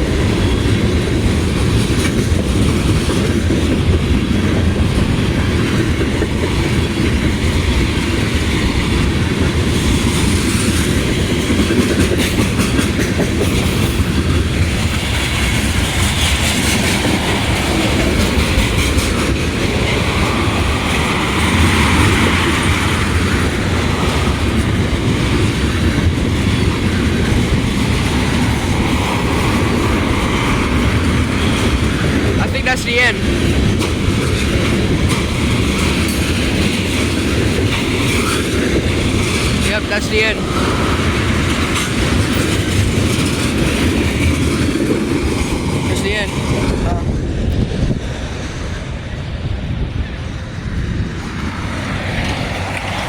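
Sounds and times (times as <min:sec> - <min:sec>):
wheels clacking on rail joints: 0:00.0 - 0:46.8, 0:51.3 - 0:53.0
freight train rumbling: 0:00.0 - 0:53.0.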